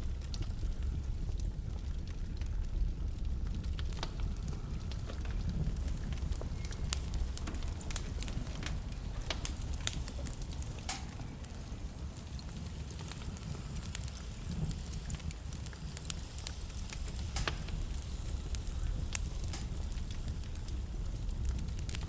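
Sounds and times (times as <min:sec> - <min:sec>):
burning logs crackling and popping: 0:00.0 - 0:22.0
low rumble of flames: 0:00.0 - 0:22.0.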